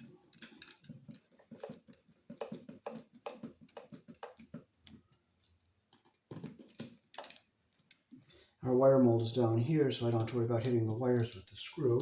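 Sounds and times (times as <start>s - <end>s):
screwdriver clicks and taps: 0.3s - 5.0s.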